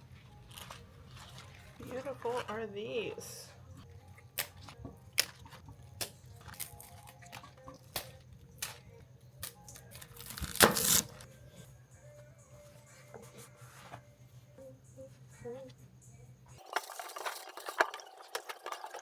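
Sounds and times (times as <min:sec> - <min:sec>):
utensils and dishes clicking: 0:16.6 - 0:19.0.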